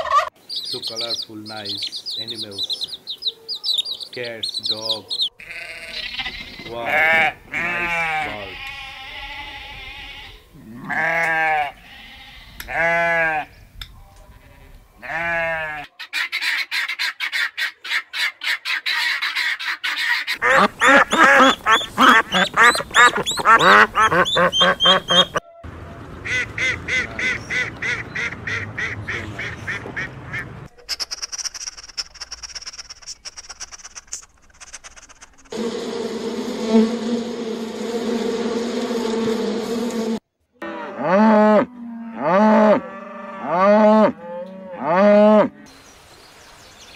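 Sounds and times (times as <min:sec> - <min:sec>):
geese honking and cackling: 0:00.0 - 0:01.2, 0:15.2 - 0:30.7
sheep bleating: 0:05.4 - 0:13.5, 0:15.0 - 0:15.9.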